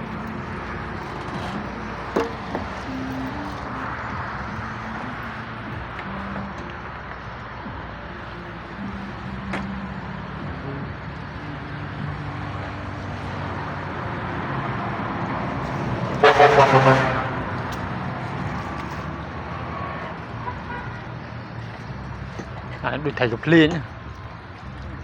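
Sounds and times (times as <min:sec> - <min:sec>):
loud horn blast: 0:15.8 - 0:17.8, 0:20.4 - 0:21.0.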